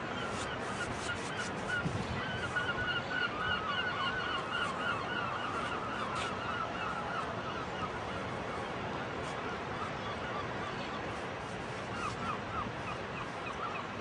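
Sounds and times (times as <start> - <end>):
flock of birds calling: 0.1 - 8.7.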